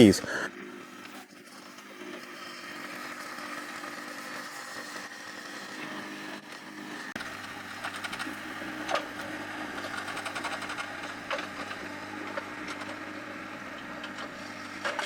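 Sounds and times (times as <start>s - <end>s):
loader engine running: 6.8s - 15.0s.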